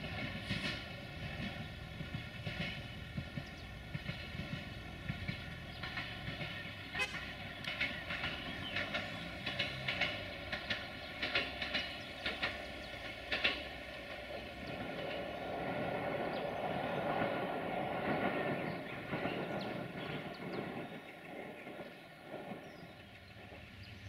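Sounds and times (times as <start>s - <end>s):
train running noise: 0.0s - 24.0s
train wheels clicking over rail joints: 0.0s - 24.0s.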